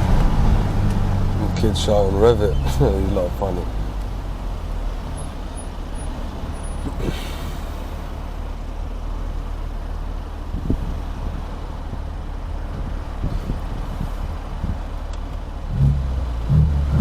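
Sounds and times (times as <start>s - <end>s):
car engine low drone: 0.0s - 17.0s.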